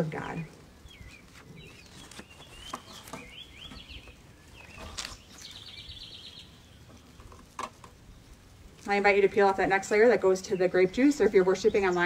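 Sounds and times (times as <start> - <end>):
songbirds chirping: 0.0 - 12.0
faint clicks and rustles: 0.5 - 9.1
bird trill: 0.9 - 6.9.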